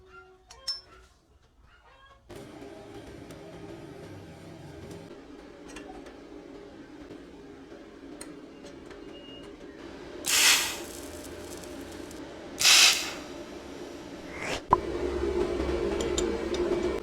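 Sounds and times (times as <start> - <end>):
hissing spray from nozzle: 10.3 - 13.3.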